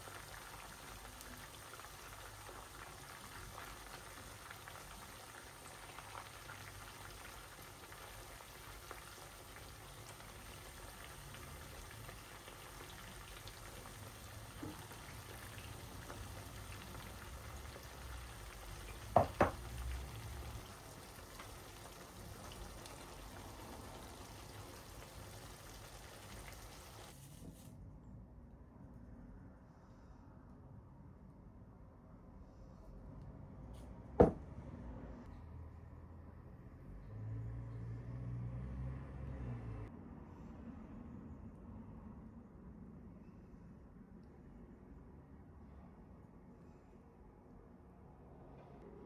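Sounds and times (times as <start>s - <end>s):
food bubbling and sizzling: 0.0s - 27.4s.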